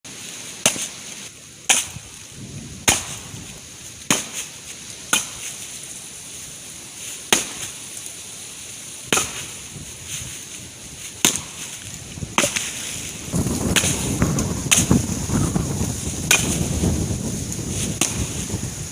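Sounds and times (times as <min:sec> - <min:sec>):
axe chopping wood: 0:00.6 - 0:01.0, 0:01.7 - 0:02.0, 0:02.8 - 0:03.4, 0:04.1 - 0:05.6, 0:07.3 - 0:07.8, 0:09.1 - 0:09.6, 0:11.2 - 0:11.8, 0:12.4 - 0:12.8, 0:13.7 - 0:14.0, 0:14.7 - 0:15.0, 0:16.2 - 0:16.8, 0:17.9 - 0:18.4.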